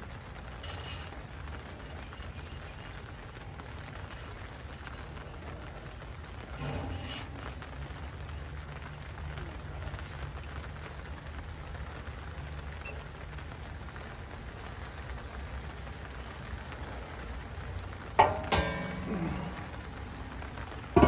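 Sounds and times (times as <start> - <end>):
faint crackling hiss: 0.0 - 21.0
blower fan humming: 17.8 - 21.0.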